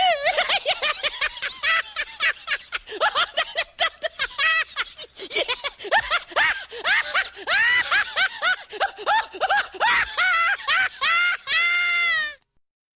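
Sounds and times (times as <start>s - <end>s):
man laughing hard: 0.0s - 12.3s.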